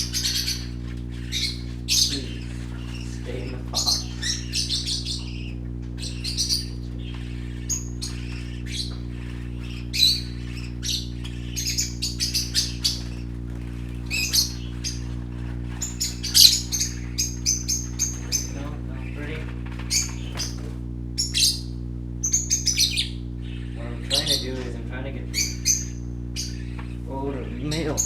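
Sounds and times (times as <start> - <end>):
parakeets chirping and squawking: 0.0 - 28.0
steady low hum: 0.0 - 28.0.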